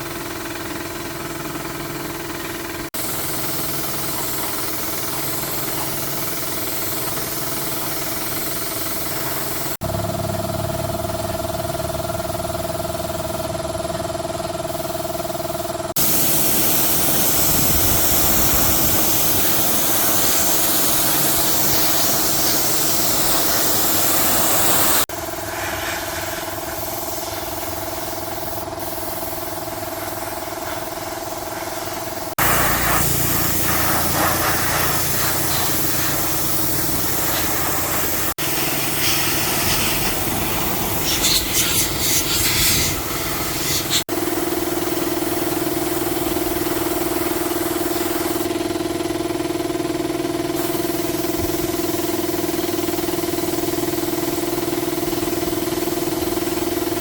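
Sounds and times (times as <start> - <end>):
high-pressure spray jet hissing: 3.0 - 9.8, 16.0 - 44.1, 46.6 - 48.5, 50.6 - 52.3
motor hum: 29.6 - 47.5.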